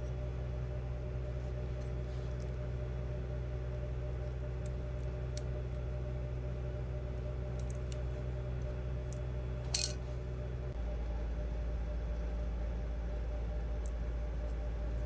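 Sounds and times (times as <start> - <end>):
steady low hum: 0.0 - 15.0
small hard parts clicking: 9.7 - 10.0.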